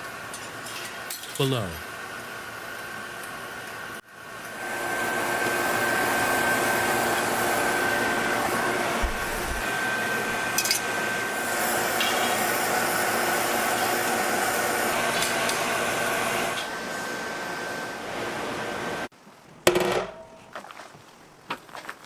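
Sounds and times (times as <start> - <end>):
gas burners hissing: 3.9 - 19.1.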